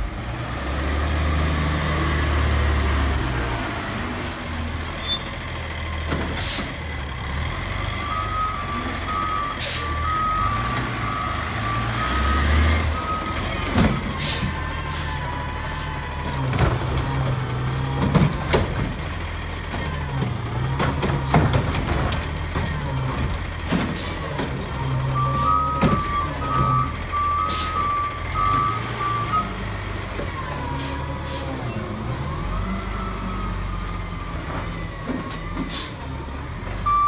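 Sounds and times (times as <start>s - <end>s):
garbage truck diesel engine: 0.0s - 37.0s
air brakes hissing: 6.4s - 6.8s, 9.5s - 10.0s, 13.7s - 15.9s, 27.4s - 27.9s, 33.8s - 36.1s.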